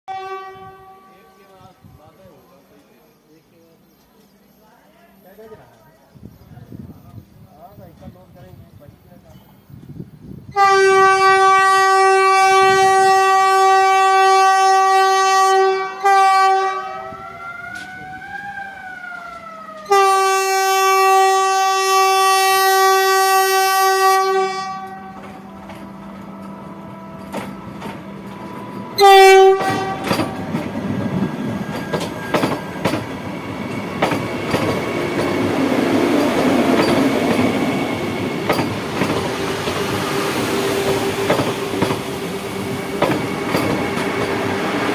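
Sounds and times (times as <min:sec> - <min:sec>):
train horn blasts: 0:00.1 - 0:01.8, 0:10.5 - 0:18.1, 0:19.3 - 0:30.6
train rumbling past: 0:00.1 - 0:44.9
wheels clacking over rail joints: 0:24.7 - 0:44.9.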